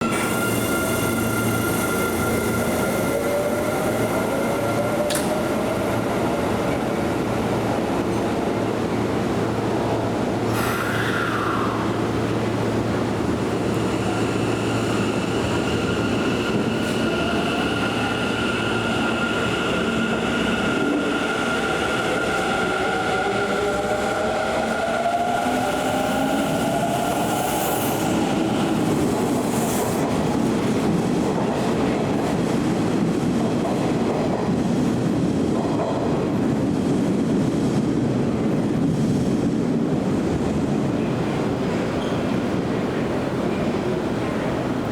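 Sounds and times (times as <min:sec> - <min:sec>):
electric train rumbling: 0:00.0 - 0:44.9.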